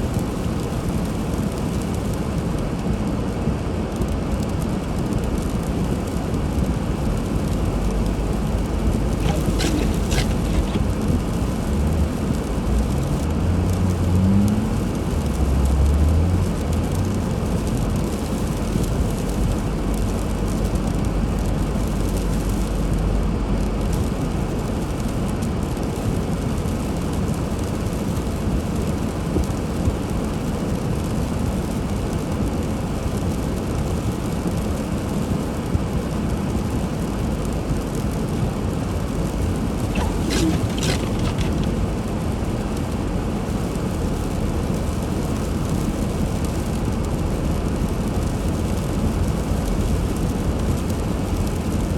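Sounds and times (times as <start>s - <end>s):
car driving on snowy road: 0.0s - 51.9s.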